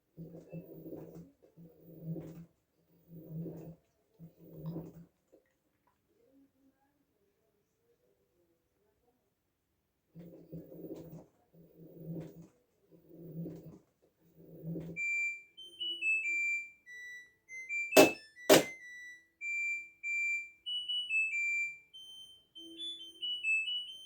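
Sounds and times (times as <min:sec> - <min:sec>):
washing machine beeper melody: 0:14.5 - 0:24.0.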